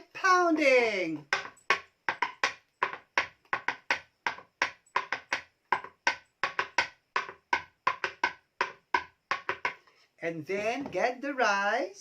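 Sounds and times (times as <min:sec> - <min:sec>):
pestle pounding in a mortar: 0:01.1 - 0:09.9.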